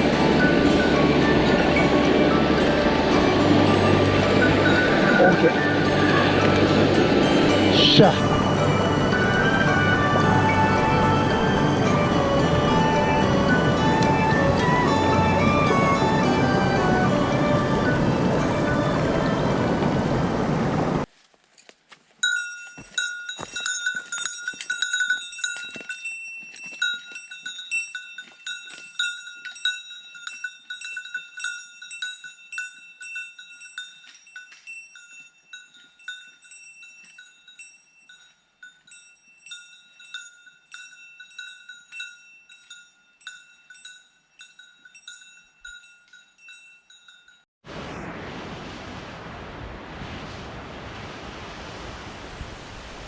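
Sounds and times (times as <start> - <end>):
small metal bell jingling: 22.2 - 47.5.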